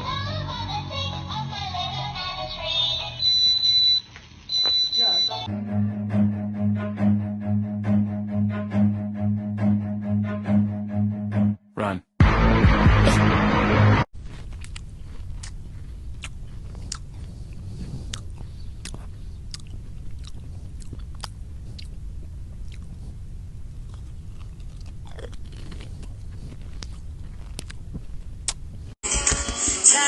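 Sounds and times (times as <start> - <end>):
animal chewing crunchy food: 14.2 - 28.9
low steady hum: 14.2 - 29.0.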